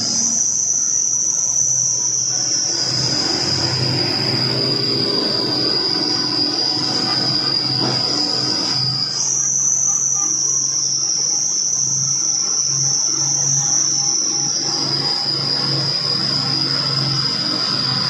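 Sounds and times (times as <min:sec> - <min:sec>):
high-pitched insect drone: 0:00.0 - 0:18.0
truck engine hum: 0:02.2 - 0:10.2.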